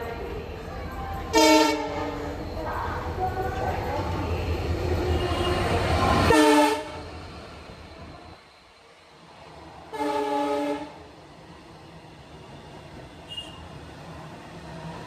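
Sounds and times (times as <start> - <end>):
train rumble: 0.0 - 8.4
locomotive multi-tone horn: 1.3 - 2.1, 6.3 - 7.0, 9.9 - 11.0, 13.2 - 13.6.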